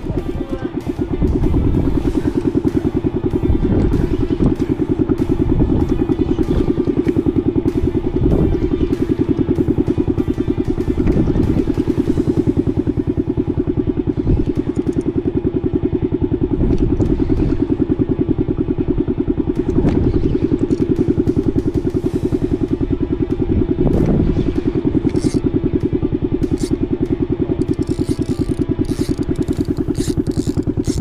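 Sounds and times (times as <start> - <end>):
boat engine throbbing: 0.0 - 31.0
light clicks and clatter: 14.4 - 15.2, 25.0 - 25.5, 26.4 - 31.0.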